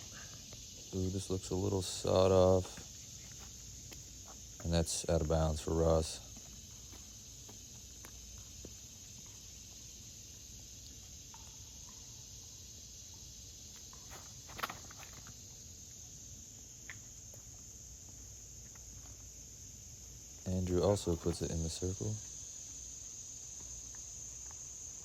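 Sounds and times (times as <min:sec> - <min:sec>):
insects chirping: 0:00.0 - 0:25.0
scuffs: 0:02.6 - 0:05.4.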